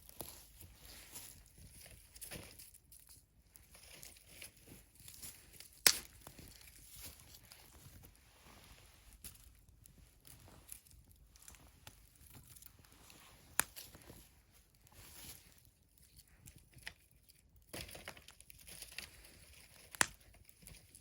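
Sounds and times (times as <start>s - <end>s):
wood fire crackling: 5.8s - 7.3s, 9.8s - 14.2s, 19.7s - 20.4s.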